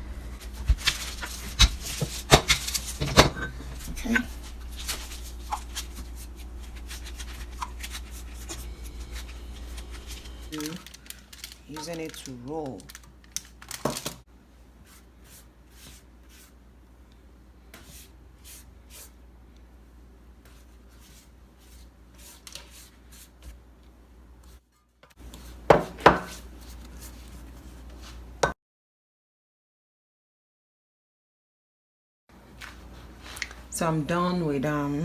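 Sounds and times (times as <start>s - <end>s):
rolling pin rubbing dough: 0.3s - 3.2s, 3.8s - 10.6s.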